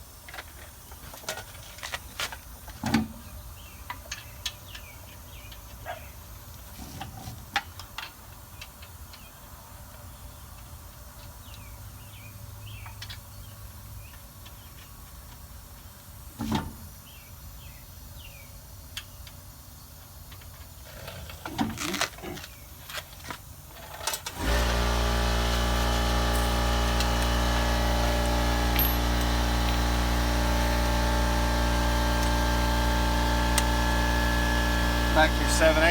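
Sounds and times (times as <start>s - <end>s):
loud steady motor hum: 24.3s - 35.9s.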